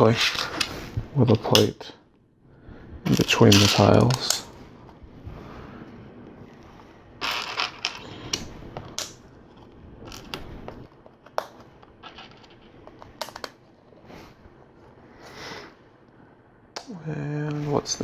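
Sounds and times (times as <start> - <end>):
rummaging through loose parts: 7.2 - 8.2.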